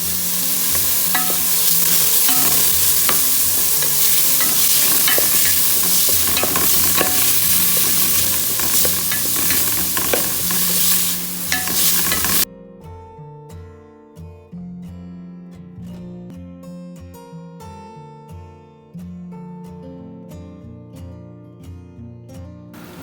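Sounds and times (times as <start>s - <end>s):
spatula scraping metal pot: 0.0s - 12.4s
food sizzling in a pot: 0.0s - 12.5s.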